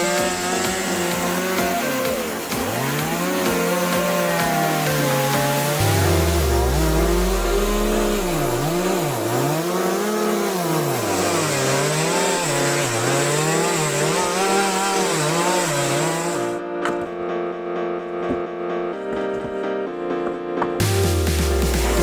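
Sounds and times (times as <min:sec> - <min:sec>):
chainsaw cutting wood: 0:00.0 - 0:16.6.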